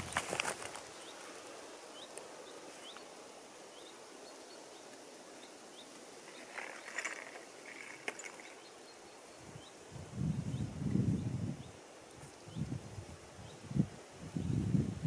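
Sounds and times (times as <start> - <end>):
rustling: 0.0 - 3.1, 5.9 - 8.7.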